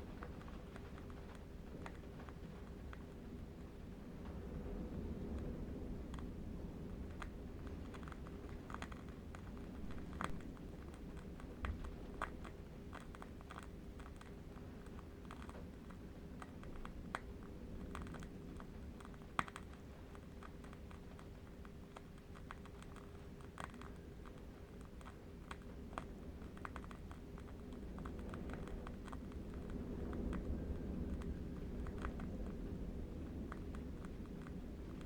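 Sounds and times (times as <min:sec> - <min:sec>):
low wind rumble: 0:00.0 - 0:35.0
candle wick crackling: 0:07.0 - 0:35.0.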